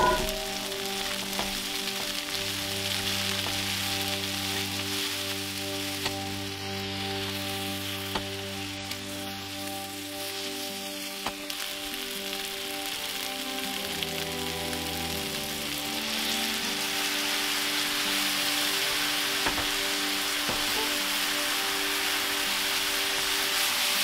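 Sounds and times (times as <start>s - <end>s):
soft background music: 0.0s - 24.0s
stir-fry sizzling in frying pan: 0.0s - 24.0s.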